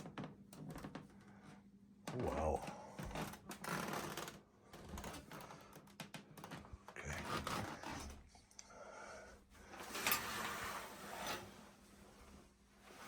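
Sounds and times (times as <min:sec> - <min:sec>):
rubbing and knocking: 0:07.1 - 0:08.3.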